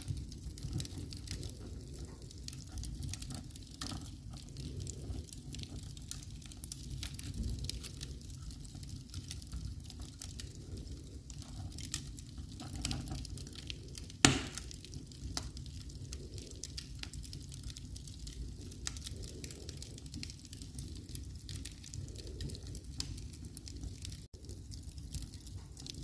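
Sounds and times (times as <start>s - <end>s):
low fire rumble: 0.0s - 26.0s
wood fire crackling: 0.0s - 26.0s
loud fire pop: 14.2s - 14.7s.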